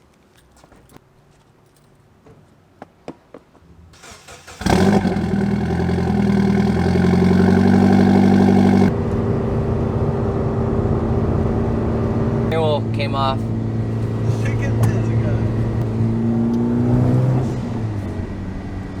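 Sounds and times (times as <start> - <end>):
car engine starting and idling: 3.9 - 19.0.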